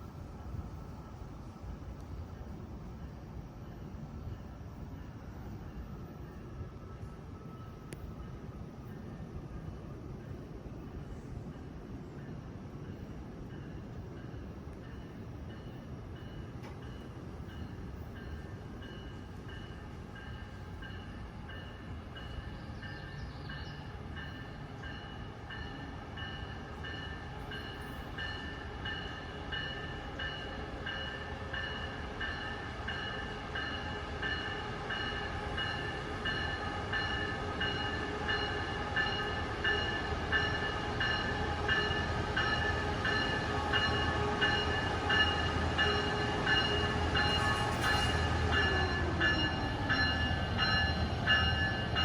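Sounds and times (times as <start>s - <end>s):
train rumble: 0.0s - 52.0s
locomotive bell ringing: 24.2s - 52.0s.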